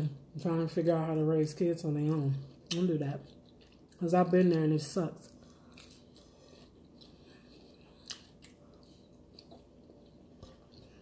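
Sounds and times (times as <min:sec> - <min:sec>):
chewing tortilla chips: 0:02.6 - 0:11.0.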